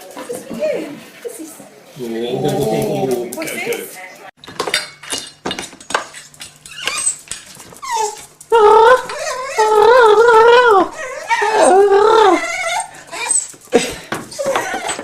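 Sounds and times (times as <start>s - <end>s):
dog whining and yowling: 6.5s - 15.0s.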